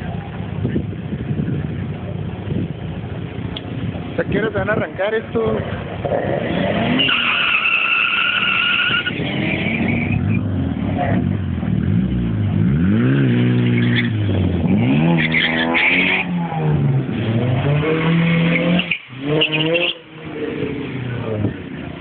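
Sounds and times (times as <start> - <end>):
car engine revving hard: 6.0 - 21.6
tire squeal: 6.2 - 10.4, 13.6 - 14.4, 15.0 - 16.7, 17.8 - 20.2.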